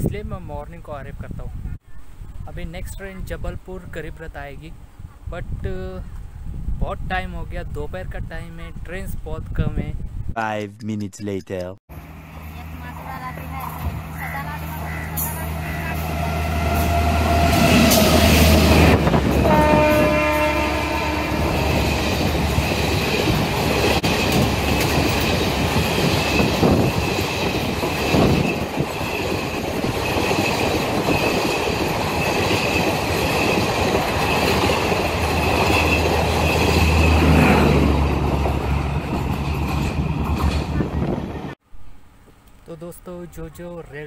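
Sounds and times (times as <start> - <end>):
passenger train rumbling past: 11.9 - 41.6
train horn blast: 14.8 - 21.9
wheels clacking over rail joints: 21.4 - 41.1.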